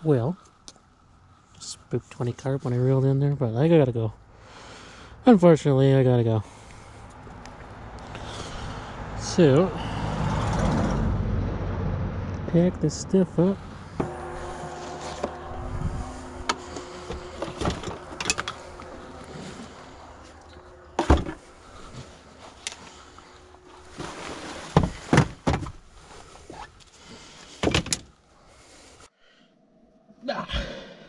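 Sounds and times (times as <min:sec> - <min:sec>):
steady hum: 0:12.5 - 0:25.7.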